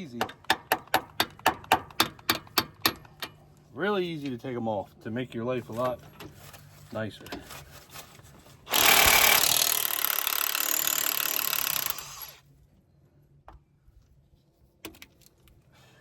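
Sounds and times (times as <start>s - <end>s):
impact wrench running: 8.7s - 12.4s.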